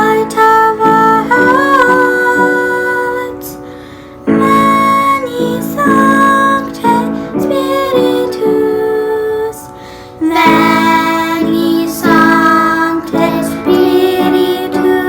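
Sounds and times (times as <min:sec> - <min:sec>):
children's choir singing: 0:10.2 - 0:15.0.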